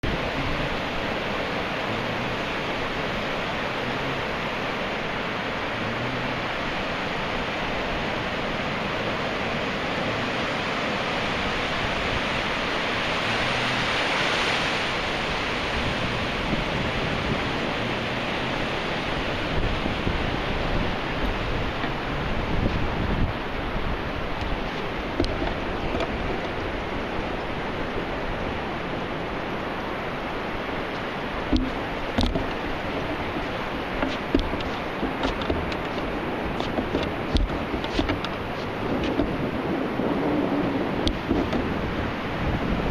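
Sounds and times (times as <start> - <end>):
waves breaking: 0.0 - 42.9
low thumps: 31.5 - 39.5, 41.1 - 41.9.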